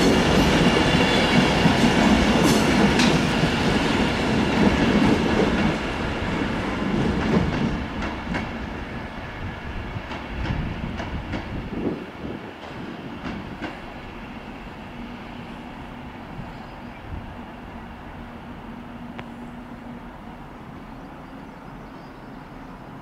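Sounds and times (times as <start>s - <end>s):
train wheels clicking over rail joints: 0.0s - 8.8s, 9.9s - 11.8s, 12.6s - 14.2s.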